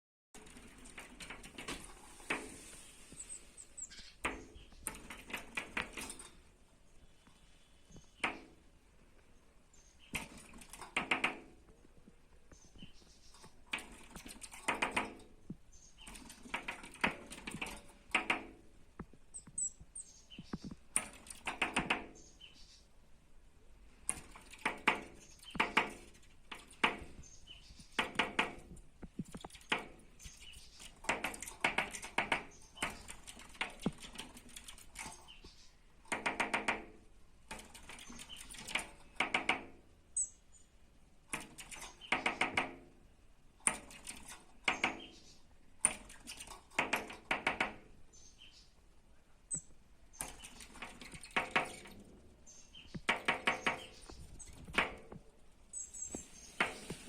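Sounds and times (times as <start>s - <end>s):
bird tapping in rapid bursts: 0.4s - 6.6s, 7.9s - 9.2s, 10.0s - 22.5s, 23.9s - 39.9s, 41.2s - 48.0s, 49.5s - 55.4s, 56.1s - 57.0s
high bird chirps: 3.0s - 5.1s, 19.3s - 20.8s, 55.7s - 57.0s.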